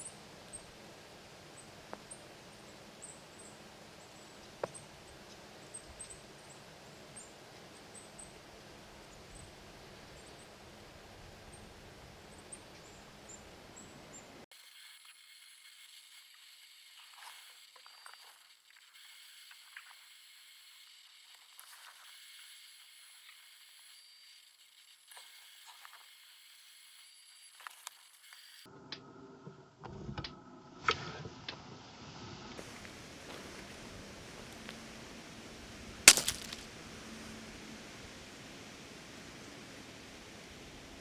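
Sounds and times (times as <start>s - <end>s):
crackles: 14.5s - 28.7s, 36.1s - 36.7s
steady hiss: 14.5s - 28.7s, 32.6s - 41.0s.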